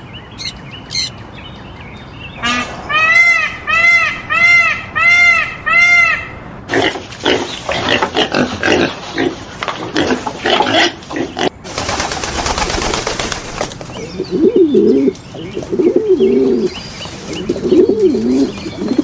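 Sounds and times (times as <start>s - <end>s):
low wavering cooing calls: 0.4s - 1.2s, 14.0s - 19.0s.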